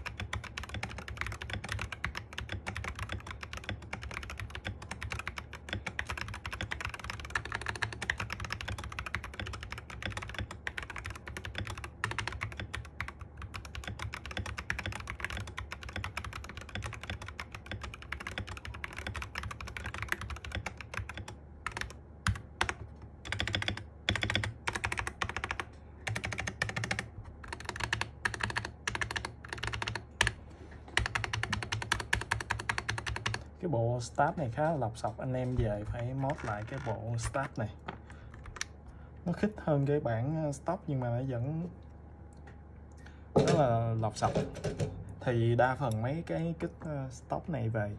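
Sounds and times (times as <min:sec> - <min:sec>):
mechanical keyboard typing: 0:00.0 - 0:30.4, 0:31.0 - 0:33.5, 0:35.0 - 0:38.7.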